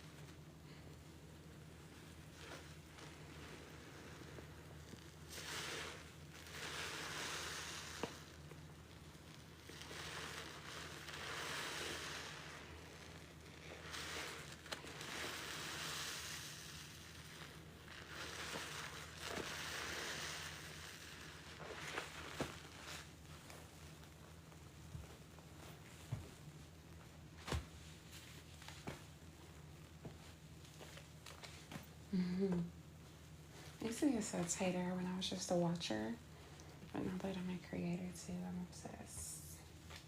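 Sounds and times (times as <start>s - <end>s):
steady low hum: 0.0s - 40.0s
wet sponge squishing: 1.9s - 32.0s.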